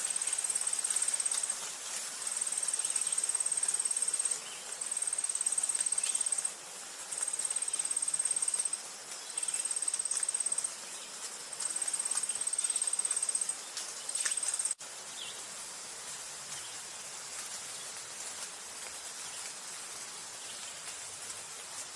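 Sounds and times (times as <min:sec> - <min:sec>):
insect trilling high and fast: 0:00.0 - 0:01.6, 0:02.4 - 0:06.5, 0:07.1 - 0:11.0, 0:11.6 - 0:14.8
steady outdoor hiss: 0:00.0 - 0:21.9.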